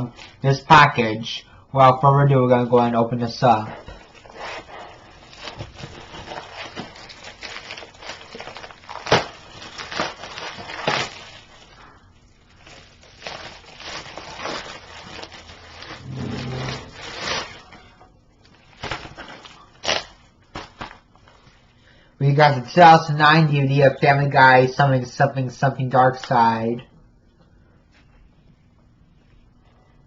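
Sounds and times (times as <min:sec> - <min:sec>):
packaging crinkling: 0:04.0 - 0:21.5
package ripping: 0:05.2 - 0:11.8, 0:12.5 - 0:21.1.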